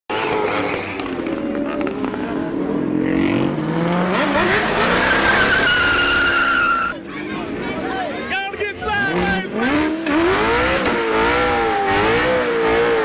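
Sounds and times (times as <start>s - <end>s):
car engine revving: 0.1s - 7.0s, 8.8s - 13.0s.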